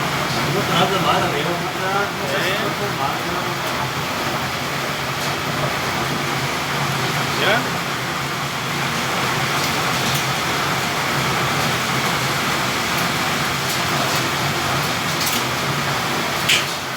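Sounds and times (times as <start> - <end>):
heavy rain: 0.0 - 16.9
hail ticks: 9.0 - 16.9.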